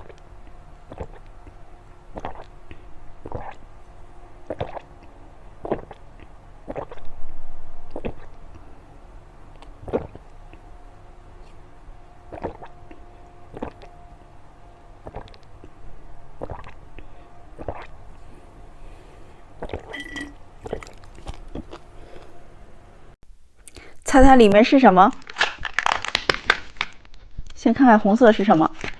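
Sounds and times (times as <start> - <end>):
person chewing soft candy: 0.0 - 3.6, 4.4 - 7.1, 7.9 - 8.7, 9.5 - 10.7, 12.3 - 13.9, 15.0 - 15.8, 16.4 - 18.4, 19.6 - 22.3
mouth smacks: 2.2 - 2.5, 3.2 - 3.6, 4.5 - 7.1, 9.5 - 10.6, 12.3 - 13.9, 16.4 - 16.8.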